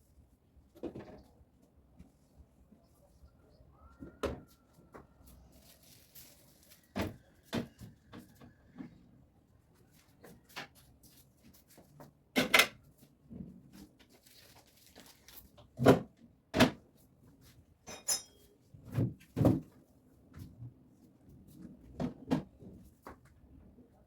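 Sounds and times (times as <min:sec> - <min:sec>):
fridge racks knocking and clattering: 0:15.8 - 0:16.8, 0:18.8 - 0:19.7, 0:21.9 - 0:22.6.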